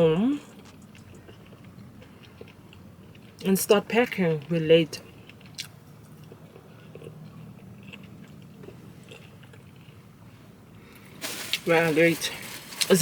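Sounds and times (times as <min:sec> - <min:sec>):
person chewing food: 0:00.4 - 0:03.5, 0:05.0 - 0:11.2.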